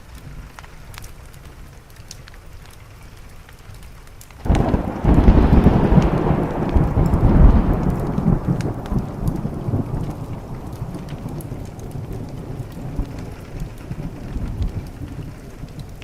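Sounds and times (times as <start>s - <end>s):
rain falling: 0.0s - 16.0s
thunderclap with deep rumble: 4.4s - 16.0s.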